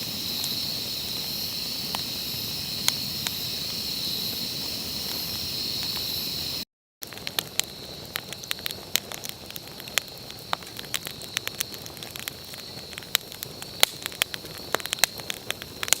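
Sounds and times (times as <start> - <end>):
high insect drone: 0.0 - 6.6
campfire crackling and popping: 0.0 - 16.0.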